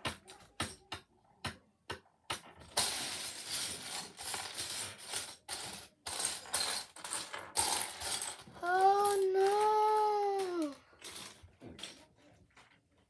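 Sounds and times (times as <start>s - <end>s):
plastic pieces rattling: 2.8s - 12.0s
plastic pieces clicking: 8.6s - 11.9s.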